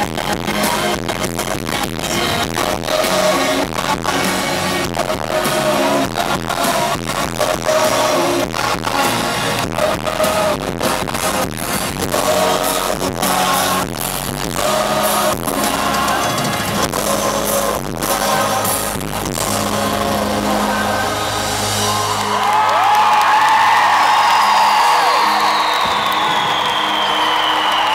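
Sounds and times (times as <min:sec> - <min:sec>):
live pop band playing: 0:00.0 - 0:27.9
voices singing: 0:02.0 - 0:21.9.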